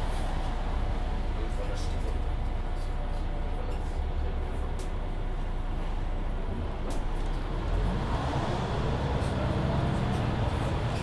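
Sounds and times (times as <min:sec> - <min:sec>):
bus engine low rumble: 0:00.0 - 0:11.0.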